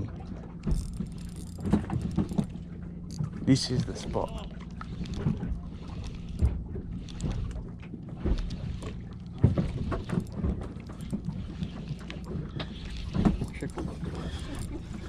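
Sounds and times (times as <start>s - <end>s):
boat motor idling: 0.0s - 15.0s.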